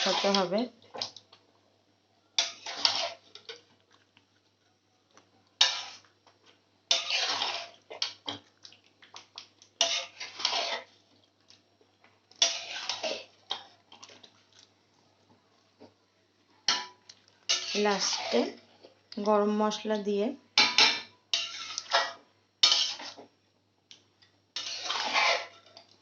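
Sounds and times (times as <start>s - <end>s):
metal spatula scraping pan: 0.0s - 0.7s, 2.4s - 3.6s, 5.6s - 6.1s, 6.9s - 8.2s, 9.8s - 11.0s, 12.4s - 13.7s, 16.7s - 18.7s, 20.6s - 23.3s, 24.6s - 25.8s.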